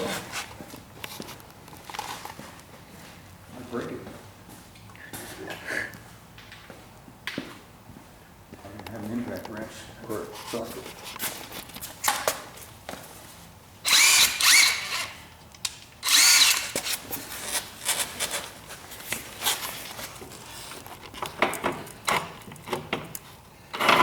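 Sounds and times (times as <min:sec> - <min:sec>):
impact wrench on bolt: 0:16.0 - 0:17.0.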